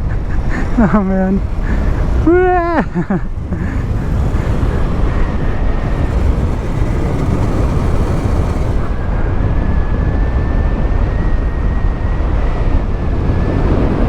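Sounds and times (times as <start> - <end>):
motorcycle tyre and road noise: 0.0 - 9.7
wind buffeting microphone: 0.0 - 14.0
faint steady high whine: 3.0 - 10.0.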